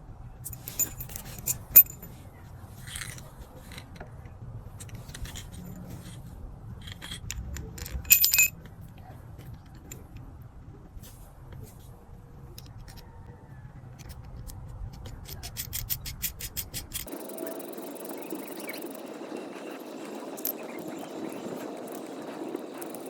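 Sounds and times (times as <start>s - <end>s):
steady low hum: 0.0s - 23.0s
metal parts clicking: 0.5s - 2.1s, 6.8s - 8.5s, 14.0s - 19.0s, 20.0s - 23.0s
sharp ringing metal clinks: 8.0s - 8.5s.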